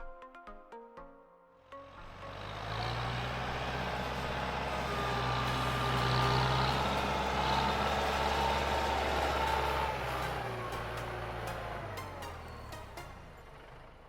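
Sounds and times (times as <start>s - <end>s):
tractor engine humming: 1.8s - 14.0s.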